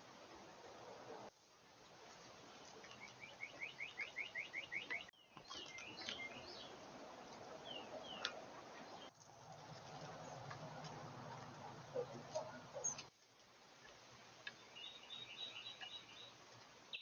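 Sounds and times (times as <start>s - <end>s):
songbirds chirping: 2.2s - 17.0s.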